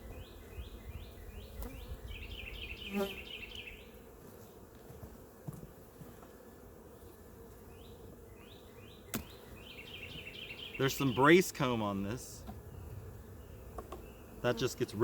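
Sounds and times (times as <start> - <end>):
bird chirping: 0.0 - 4.0, 7.7 - 11.4, 12.6 - 14.6
honeybees buzzing: 0.0 - 15.0.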